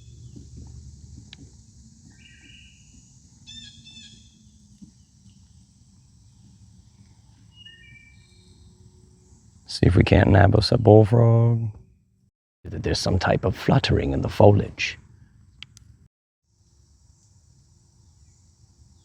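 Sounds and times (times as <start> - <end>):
steady low rumble: 0.0 - 3.5
high chirping birdsong: 2.0 - 6.1, 7.4 - 9.6.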